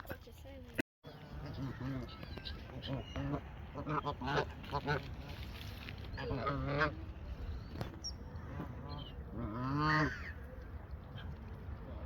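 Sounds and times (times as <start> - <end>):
geese honking: 1.1 - 5.4.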